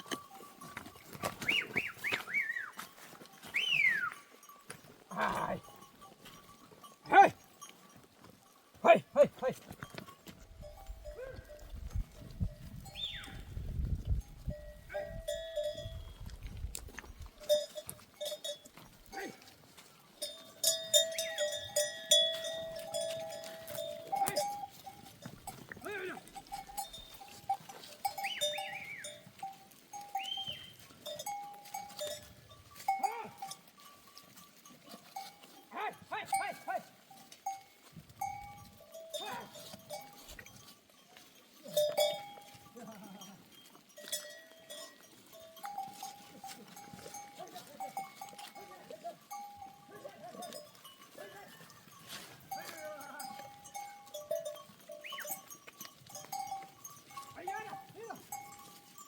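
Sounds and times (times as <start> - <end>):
animal bells clanking: 0.0 - 59.0
goats bleating: 41.7 - 43.7.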